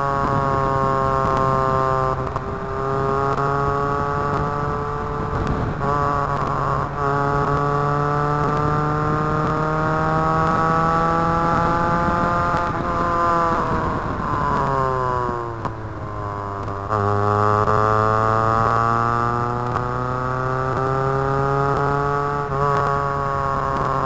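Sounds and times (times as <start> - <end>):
car engine revving under load: 0.0 - 24.0.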